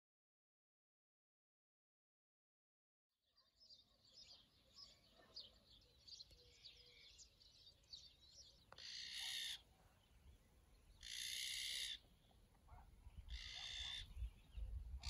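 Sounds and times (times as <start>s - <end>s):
small birds chirping: 3.3s - 15.0s
magpie harsh call: 8.8s - 9.6s, 11.0s - 12.1s, 13.3s - 14.2s.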